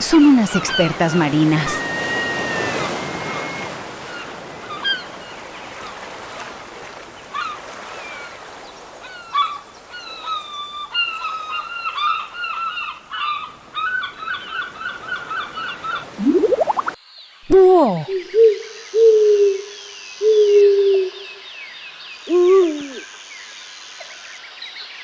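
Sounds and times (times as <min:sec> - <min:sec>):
seagulls calling: 0:00.0 - 0:06.0, 0:09.0 - 0:17.0.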